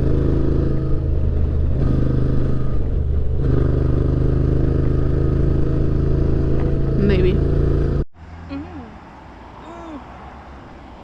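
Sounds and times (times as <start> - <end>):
motorcycle engine cruising: 0.0 - 9.3.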